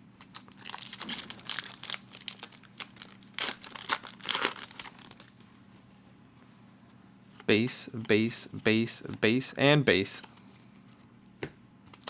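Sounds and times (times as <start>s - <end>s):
foil wrapper tearing and crinkling: 0.2s - 5.4s.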